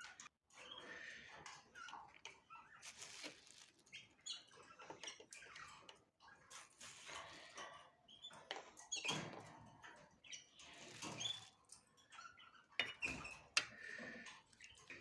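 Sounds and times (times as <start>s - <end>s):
rustling in cage: 2.8s - 4.0s
cage birds chirping: 3.6s - 15.0s.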